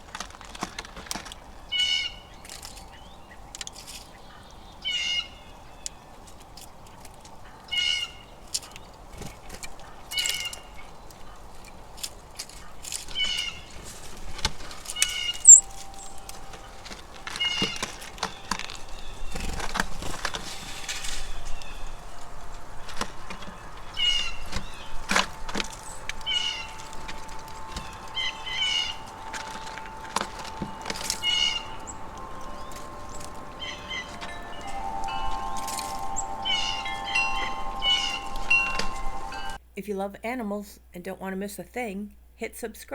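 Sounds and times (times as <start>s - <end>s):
birds calling harshly: 0.0s - 39.6s
wind chimes ringing: 9.0s - 39.6s.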